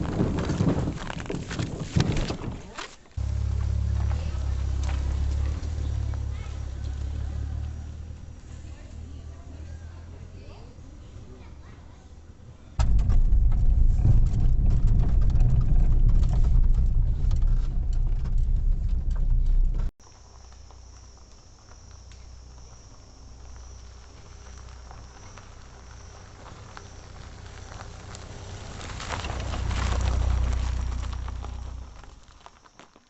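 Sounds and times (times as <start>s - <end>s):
loud low rumble: 3.2s - 8.6s, 12.8s - 19.9s.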